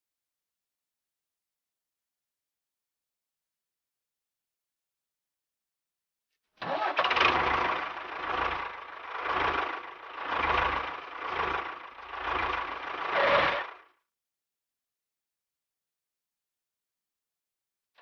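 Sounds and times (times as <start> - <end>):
small motor running: 6.8 - 13.8.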